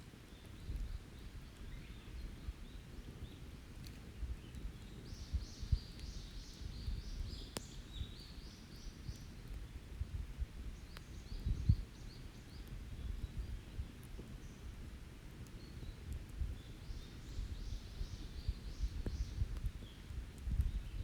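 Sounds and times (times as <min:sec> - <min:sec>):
campfire crackling: 0:00.0 - 0:21.0
songbird singing: 0:00.2 - 0:09.8, 0:10.6 - 0:14.8, 0:15.4 - 0:21.0
low rumbling and dull thumps: 0:17.5 - 0:21.0.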